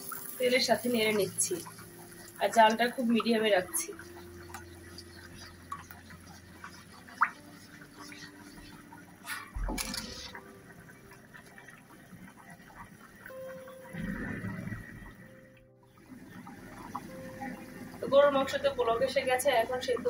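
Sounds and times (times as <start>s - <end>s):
paste sizzling in hot oil: 0.0s - 11.7s.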